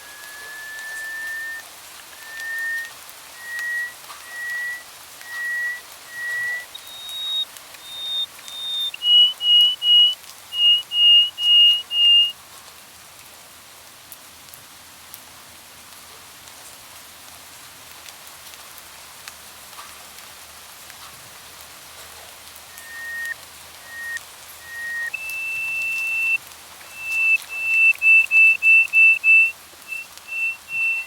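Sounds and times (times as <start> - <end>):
small ticks: 0.0 - 12.3, 22.7 - 31.0
songbird whistling: 0.0 - 12.4, 22.7 - 31.0
faint steady hiss: 0.0 - 31.0.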